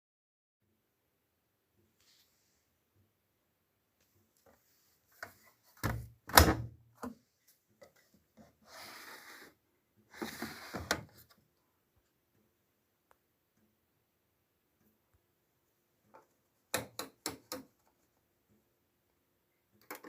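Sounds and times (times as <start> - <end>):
rustling sliding noise: 1.9 - 2.8, 7.2 - 11.4.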